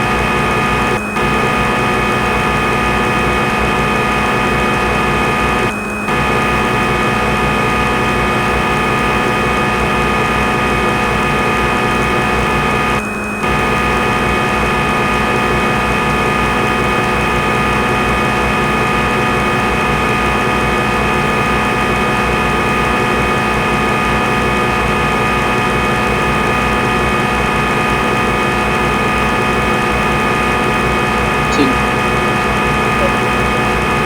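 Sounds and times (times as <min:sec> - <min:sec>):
machine hum with steady tones: 0:00.0 - 0:20.2.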